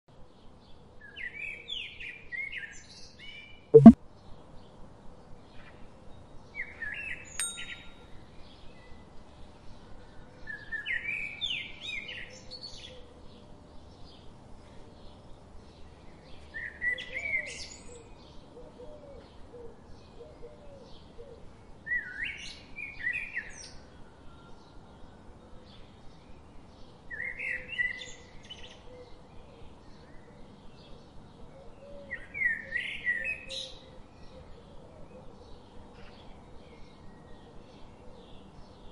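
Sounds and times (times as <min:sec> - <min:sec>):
faint quick chirps: 0:03.8 - 0:04.0.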